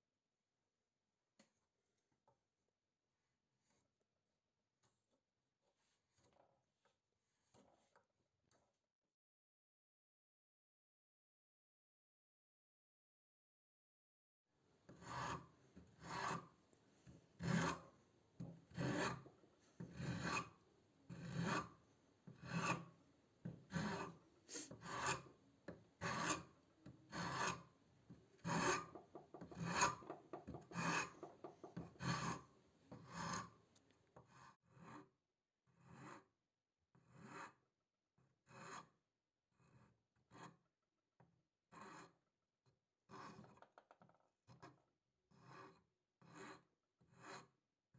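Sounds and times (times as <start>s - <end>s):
rasping abrasive hand strokes: 28.4s - 32.4s.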